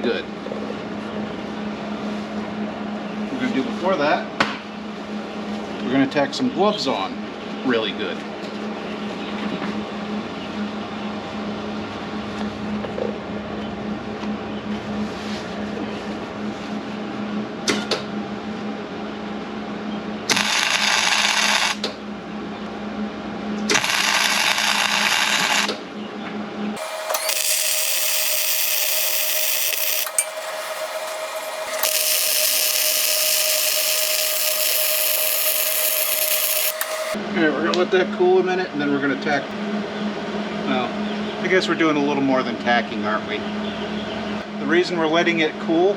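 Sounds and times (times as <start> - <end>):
electrical hum: 20.3 - 21.9, 23.7 - 25.8, 26.8 - 37.2
welding arc crackling: 20.3 - 21.9, 23.7 - 25.8, 26.8 - 37.2
steady tone: 26.8 - 37.2.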